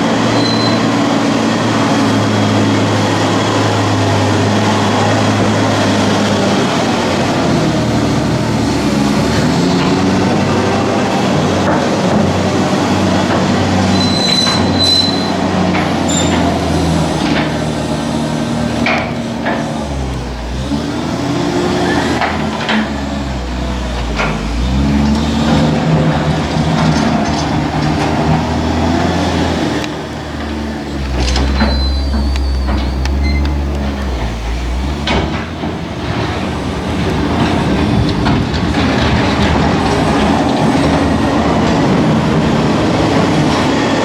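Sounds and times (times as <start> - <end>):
diesel engine revving under load: 0.0 - 44.0
clanks and knocks: 11.5 - 44.0.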